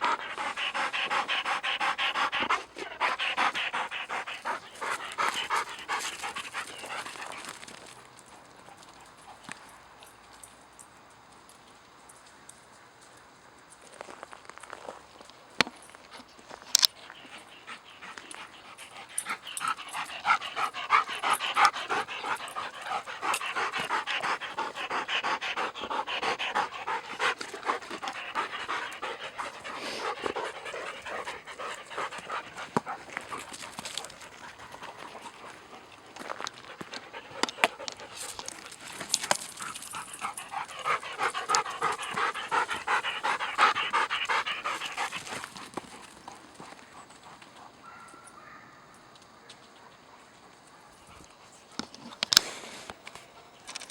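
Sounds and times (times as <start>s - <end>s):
dog panting: 0.0s - 7.9s, 16.9s - 47.8s.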